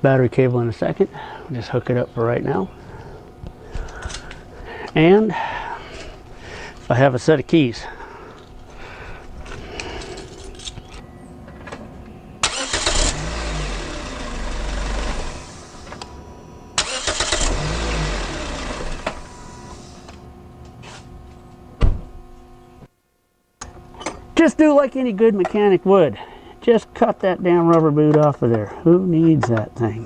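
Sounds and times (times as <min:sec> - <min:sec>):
car engine starter cranking: 0:12.4 - 0:16.0, 0:16.8 - 0:20.0
sharp thump: 0:21.8 - 0:22.2.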